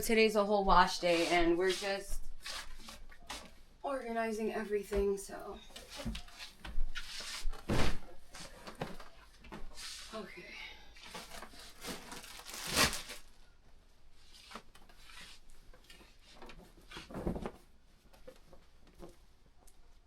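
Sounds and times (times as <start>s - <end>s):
objects rustling and rubbing: 5.6s - 10.2s, 14.1s - 19.4s.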